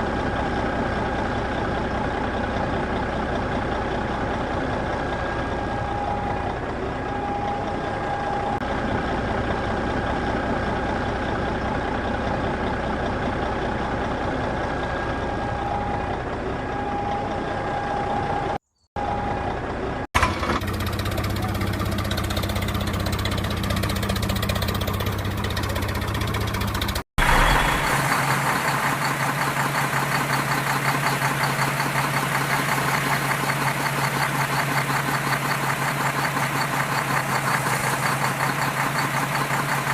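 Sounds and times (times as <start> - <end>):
mini tractor running: 19.6 - 39.9.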